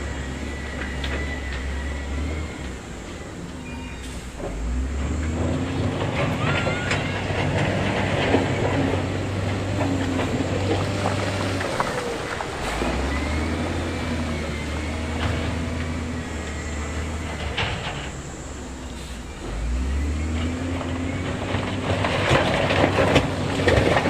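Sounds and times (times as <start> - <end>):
diesel engine of heavy machinery: 0.0 - 24.0
thin metallic squeal: 0.2 - 4.4
metallic clanks and scraping: 4.0 - 19.6.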